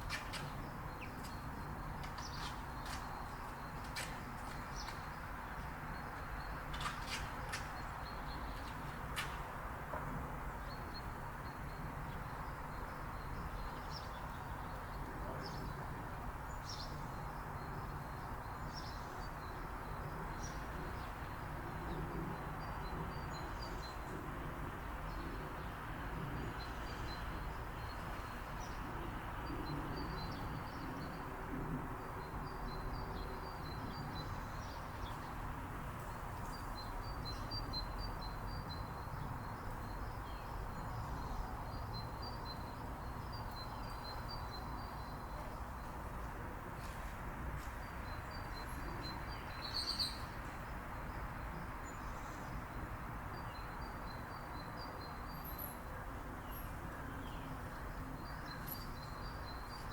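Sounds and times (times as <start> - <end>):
small birds chirping: 47.6 - 52.7.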